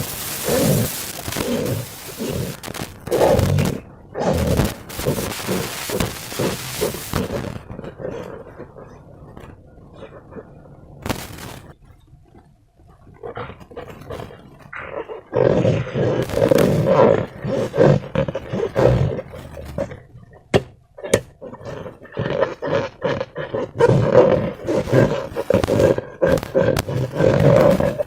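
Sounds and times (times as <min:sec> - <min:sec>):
sharp clicks: 0:00.0 - 0:03.8
slime balloons squelching: 0:00.0 - 0:08.0, 0:16.1 - 0:28.0.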